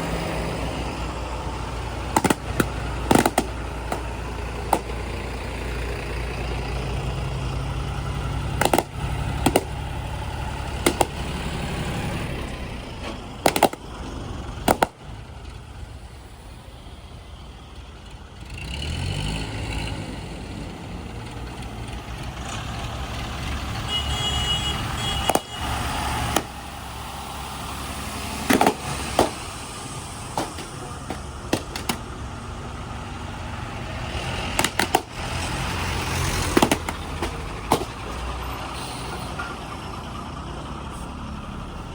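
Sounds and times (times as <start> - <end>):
heavy diesel engine running: 0.0 - 41.9
backhoe bucket clanking: 30.2 - 32.4, 34.6 - 38.5.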